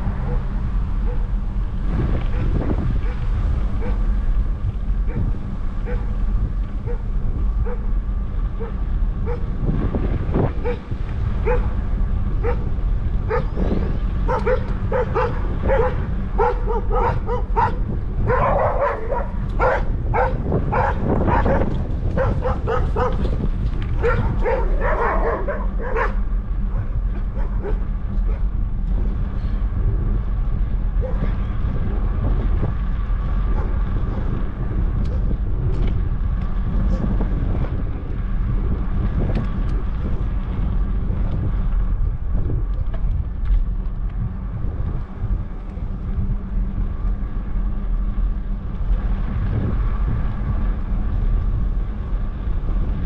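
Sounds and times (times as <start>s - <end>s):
steady low rumble: 0.0s - 53.0s
dog barking: 0.2s - 0.4s, 3.8s - 4.0s, 5.1s - 6.1s, 6.8s - 7.0s, 7.6s - 7.9s, 8.6s - 9.5s, 10.6s - 10.8s, 11.4s - 11.7s, 12.4s - 12.7s, 13.3s - 13.6s, 14.3s - 23.4s, 24.0s - 28.4s, 31.0s - 31.4s.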